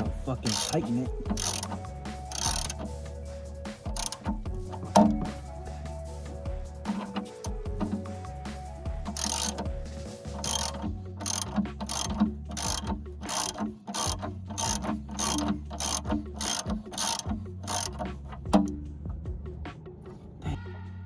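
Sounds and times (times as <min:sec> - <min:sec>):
socket ratchet clicking: 0:00.0 - 0:02.9, 0:03.9 - 0:05.4, 0:06.9 - 0:08.0, 0:09.1 - 0:09.7, 0:10.4 - 0:18.7.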